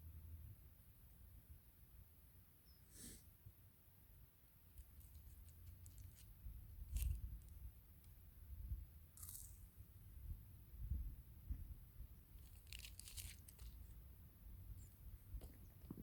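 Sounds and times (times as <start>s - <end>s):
crinkly rustles: 4.8s - 8.2s, 12.3s - 14.0s.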